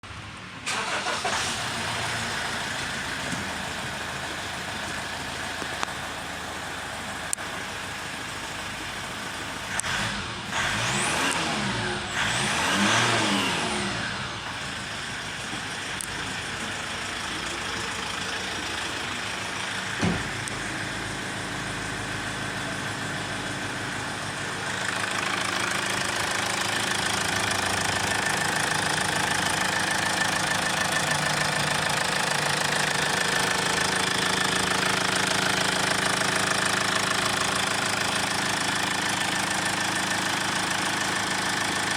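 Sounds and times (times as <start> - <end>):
car engine revving: 9.7 - 15.3, 16.1 - 38.8.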